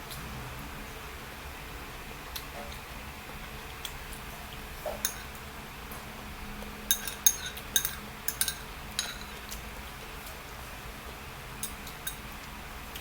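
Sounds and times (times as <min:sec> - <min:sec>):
cutlery clinking against dish: 0:04.9 - 0:05.4, 0:06.9 - 0:09.6, 0:11.6 - 0:12.2
light cutlery taps: 0:04.9 - 0:05.4, 0:06.9 - 0:09.6.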